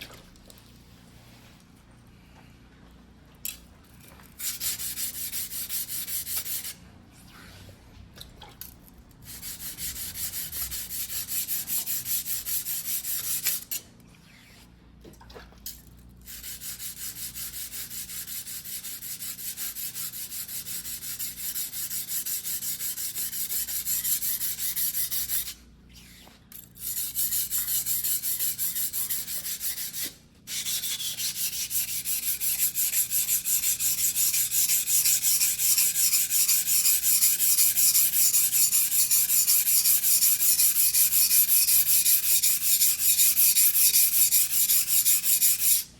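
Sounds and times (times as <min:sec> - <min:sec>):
knife grinding on whetstone: 0:26.8 - 0:45.8.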